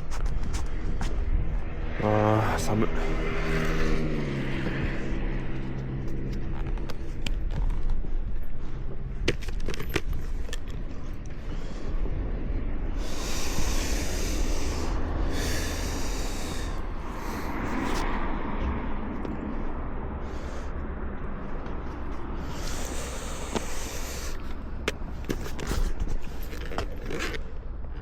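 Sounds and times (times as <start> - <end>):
hissing rush of noise: 12.7 - 18.2, 22.3 - 24.8.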